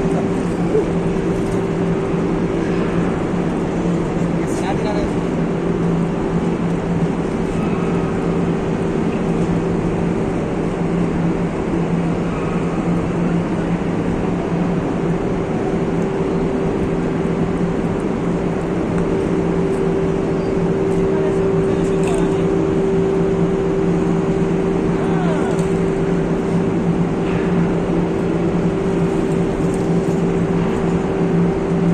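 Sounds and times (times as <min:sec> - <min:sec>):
deep electrical hum: 0:00.0 - 0:31.9
furnace roaring rush: 0:00.0 - 0:31.9.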